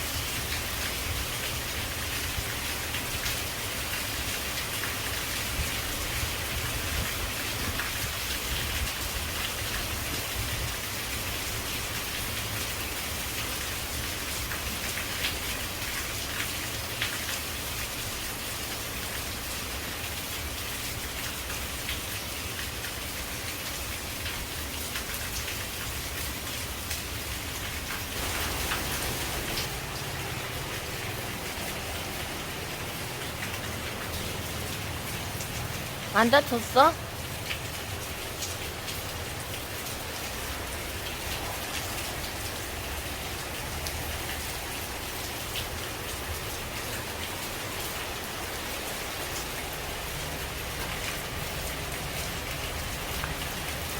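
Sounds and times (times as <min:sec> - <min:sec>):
rain falling on leaves: 0:00.0 - 0:53.9
water drips: 0:28.2 - 0:42.0, 0:50.3 - 0:53.9.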